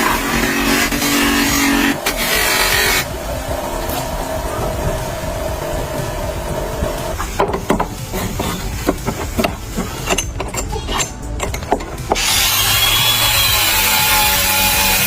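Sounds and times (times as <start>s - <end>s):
power tool running: 0.0s - 10.1s, 12.0s - 15.0s
scrapes and knocks: 7.1s - 12.2s.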